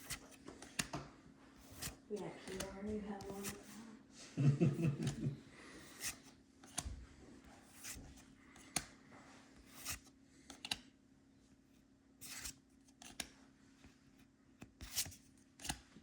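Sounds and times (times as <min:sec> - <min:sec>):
cards sliding off a stack: 0:01.6 - 0:03.8, 0:05.8 - 0:06.8, 0:07.6 - 0:08.9, 0:09.6 - 0:10.8, 0:12.2 - 0:13.3, 0:14.6 - 0:15.8.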